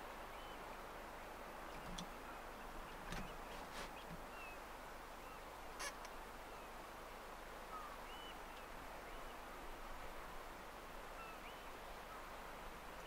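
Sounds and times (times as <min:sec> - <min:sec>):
wind: 0:00.0 - 0:13.0
distant birds whistling: 0:07.7 - 0:09.4.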